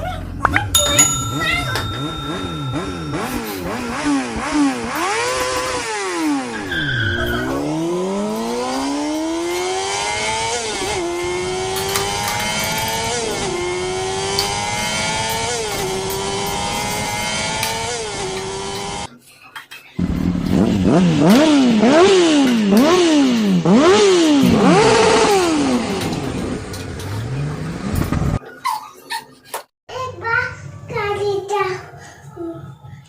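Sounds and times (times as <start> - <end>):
motorcycle engine revving and accelerating: 1.9 - 19.1, 20.0 - 28.4.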